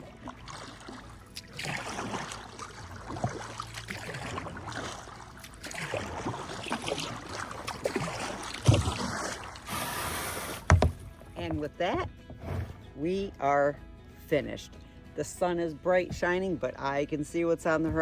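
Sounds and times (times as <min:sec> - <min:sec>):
paddle strokes splashing in water: 0:00.0 - 0:12.9
thump: 0:10.6 - 0:11.1.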